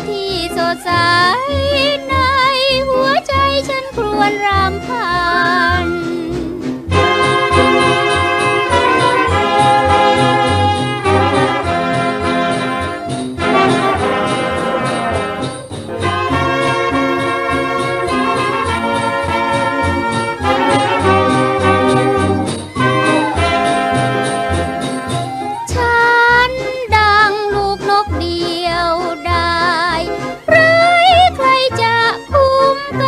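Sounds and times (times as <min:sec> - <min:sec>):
brass section playing melody: 0:00.9 - 0:33.0.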